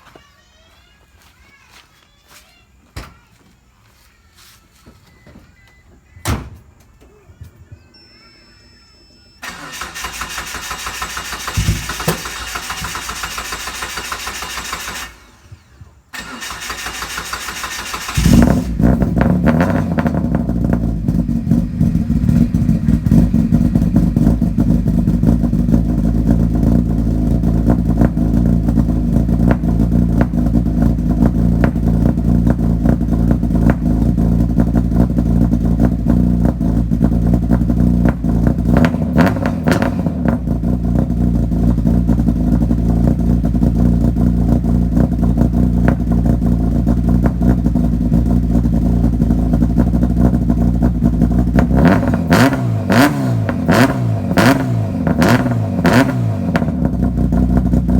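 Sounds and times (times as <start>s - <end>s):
car starter cranking: 9.4s - 44.7s
car engine idling: 9.4s - 57.9s.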